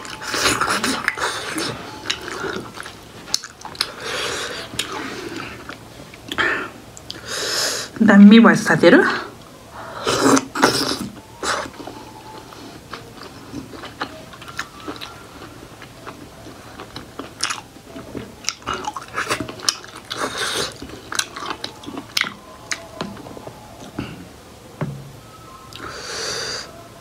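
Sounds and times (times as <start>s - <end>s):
chewing with wet mouth clicks: 0.0s - 6.4s, 10.2s - 24.0s.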